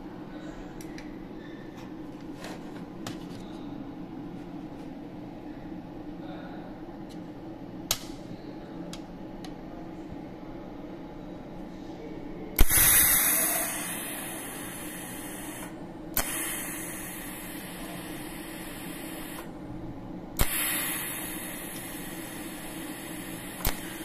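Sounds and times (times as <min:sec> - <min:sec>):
machine hum: 0:00.0 - 0:24.0
welding arc crack and hiss: 0:12.6 - 0:19.5, 0:20.4 - 0:24.0.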